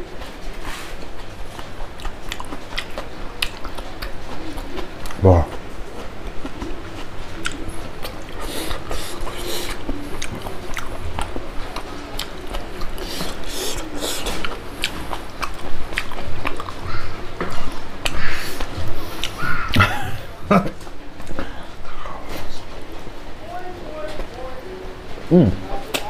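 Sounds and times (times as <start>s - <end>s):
chewing and wet mouth smacks: 1.2s - 19.8s.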